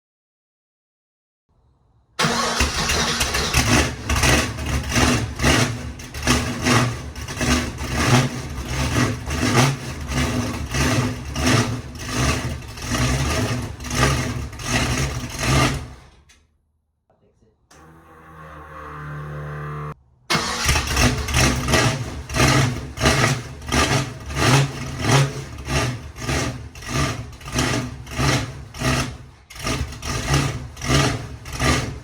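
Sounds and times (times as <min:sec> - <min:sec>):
engine cranking: 0:02.2 - 0:09.3, 0:17.7 - 0:24.3
engine running with surging: 0:17.7 - 0:28.6.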